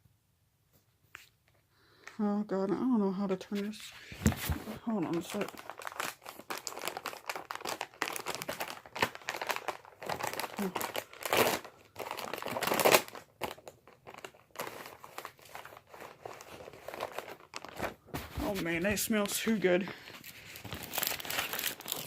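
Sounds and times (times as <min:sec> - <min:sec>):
plastic packaging crinkling: 0:03.7 - 0:22.0
packaging ripping: 0:04.2 - 0:18.6, 0:20.0 - 0:22.0.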